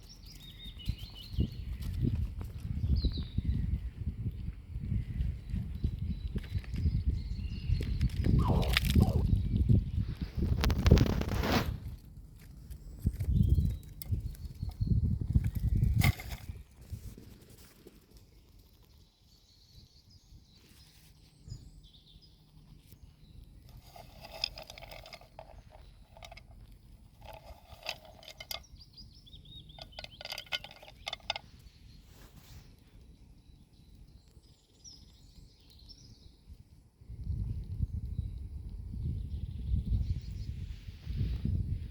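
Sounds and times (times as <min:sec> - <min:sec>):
faint bird chirps: 0:02.9 - 0:10.3.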